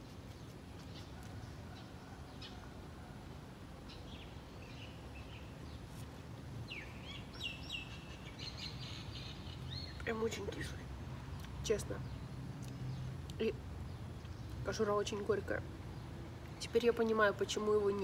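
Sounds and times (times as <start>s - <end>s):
birds chirping: 6.6s - 18.0s.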